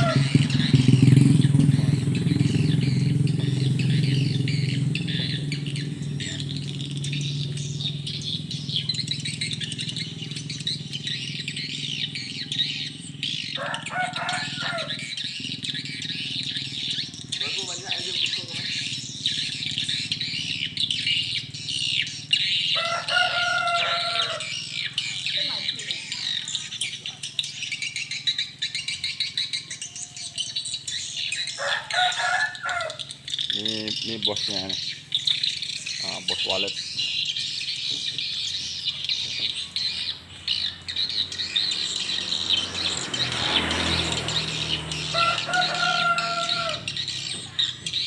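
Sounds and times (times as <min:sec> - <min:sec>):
swiftlets twittering: 0:00.0 - 0:27.3.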